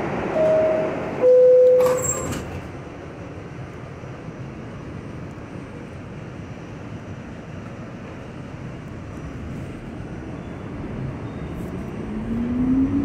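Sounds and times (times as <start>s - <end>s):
train doors sliding shut: 0.0s - 3.0s
train car humming: 0.0s - 13.0s
two-tone door chime: 0.4s - 2.4s.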